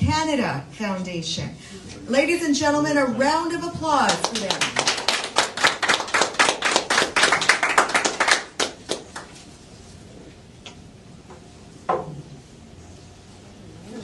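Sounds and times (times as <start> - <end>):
people applauding: 4.1 - 9.4.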